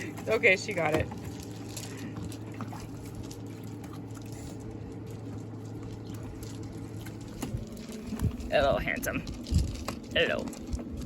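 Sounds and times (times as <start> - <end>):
low hum: 0.0 - 11.0
water pouring: 0.0 - 11.0.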